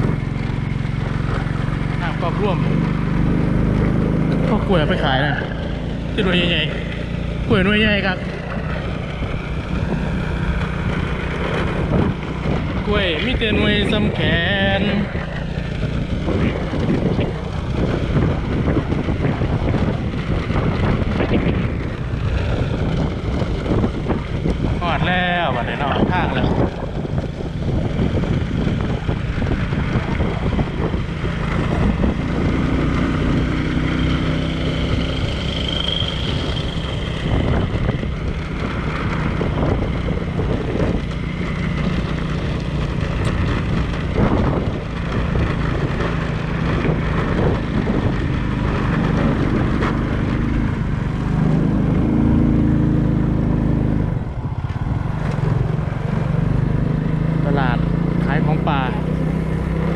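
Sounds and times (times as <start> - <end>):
vehicle engine running: 0.0 - 59.9
wind on microphone: 0.0 - 59.9.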